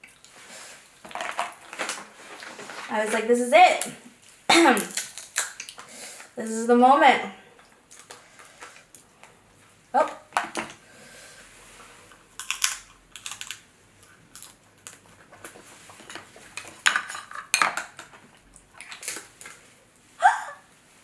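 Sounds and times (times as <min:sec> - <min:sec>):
crab shells cracking: 0:04.8 - 0:06.3, 0:12.4 - 0:15.6.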